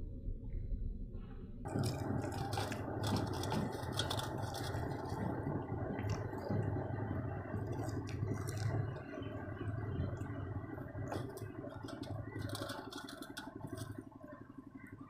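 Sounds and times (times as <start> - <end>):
steady low hum: 0.0 - 15.0
crunching potato chips: 1.7 - 6.6, 7.5 - 9.3, 11.1 - 13.9.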